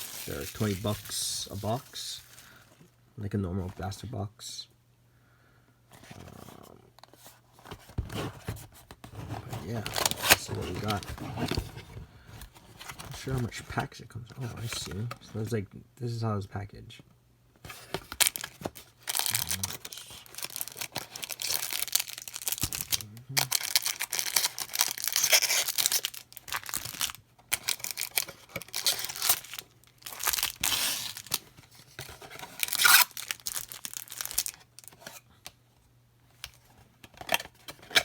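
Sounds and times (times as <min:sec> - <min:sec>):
packaging tearing and crinkling: 0:00.0 - 0:02.7, 0:09.2 - 0:11.8, 0:17.7 - 0:35.2.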